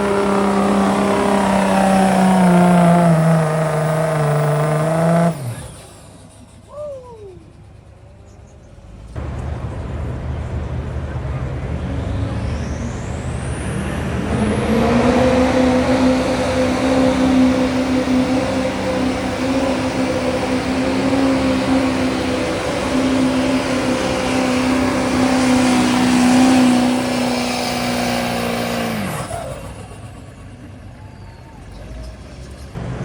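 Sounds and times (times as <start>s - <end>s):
diesel truck engine high-revving: 0.0s - 33.0s
turbo whine: 0.0s - 33.0s.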